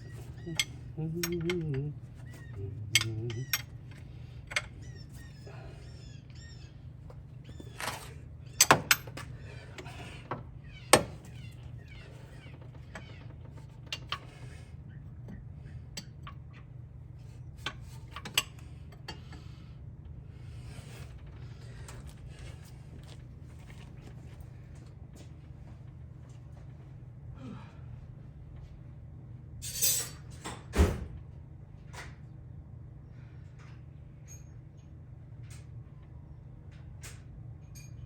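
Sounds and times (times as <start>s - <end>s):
tools and metal parts clicking: 0.0s - 5.3s, 7.6s - 10.0s, 29.6s - 30.2s, 36.7s - 38.0s
steady low hum: 0.0s - 30.3s.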